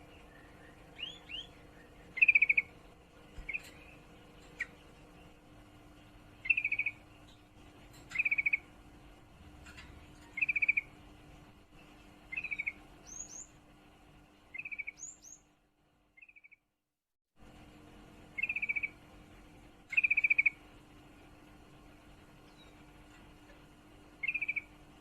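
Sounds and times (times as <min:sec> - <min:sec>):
bird chattering trills: 0:00.0 - 0:02.8, 0:03.4 - 0:05.4, 0:06.4 - 0:08.8, 0:10.3 - 0:11.0, 0:12.3 - 0:13.6, 0:14.5 - 0:15.4, 0:18.3 - 0:19.0, 0:19.9 - 0:20.6, 0:24.2 - 0:24.8.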